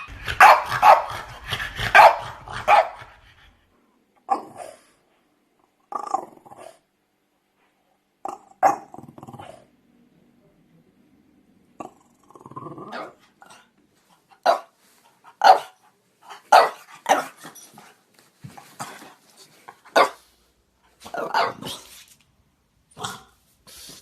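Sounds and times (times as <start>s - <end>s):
dog barking sharply: 0.0s - 1.3s, 1.9s - 3.0s, 14.4s - 14.7s, 16.5s - 17.3s, 21.1s - 21.8s
dog growling low: 5.9s - 6.9s, 8.2s - 9.8s, 11.8s - 13.7s.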